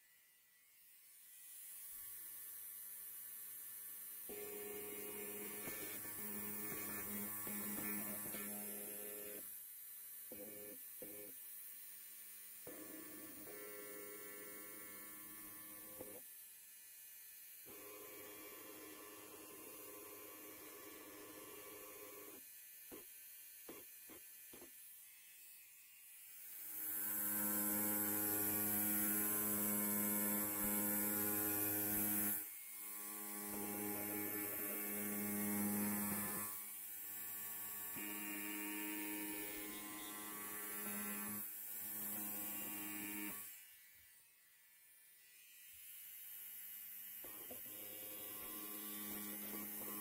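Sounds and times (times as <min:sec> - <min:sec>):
electric hair clipper buzzing: 0:00.0 - 0:50.0.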